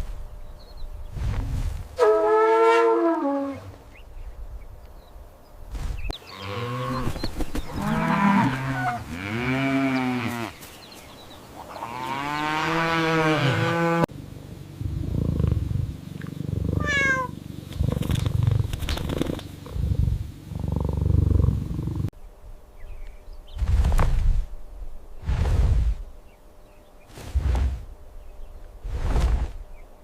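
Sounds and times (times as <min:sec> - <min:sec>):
cattle mooing: 0:07.8 - 0:10.6, 0:11.8 - 0:14.1.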